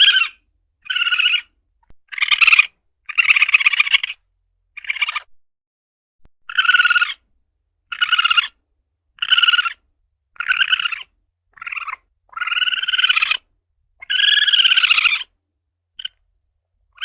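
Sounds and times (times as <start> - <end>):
civet calling: 0.0 - 4.2, 4.8 - 5.3, 6.5 - 7.2, 7.9 - 8.6, 9.2 - 9.8, 10.4 - 15.3, 16.0 - 16.2.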